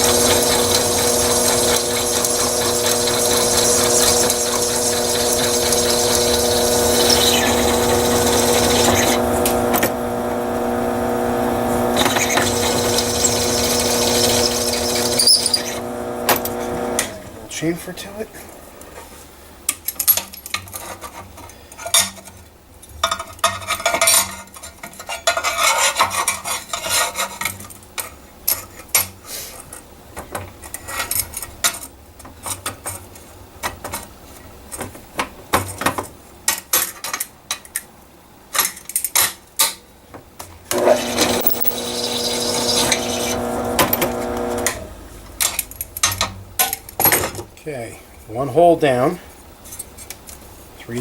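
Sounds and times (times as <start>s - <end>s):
drill bit scraping steel: 0.0s - 17.3s, 40.7s - 44.9s
drill press whine: 0.0s - 17.4s, 40.7s - 45.1s.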